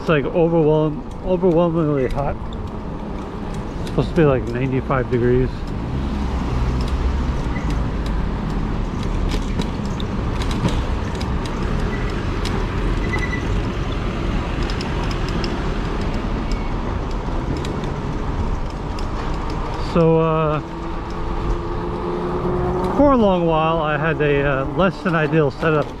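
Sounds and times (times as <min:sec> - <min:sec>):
road noise: 0:00.0 - 0:26.0
light clicks and rattles: 0:00.8 - 0:22.0, 0:22.8 - 0:26.0.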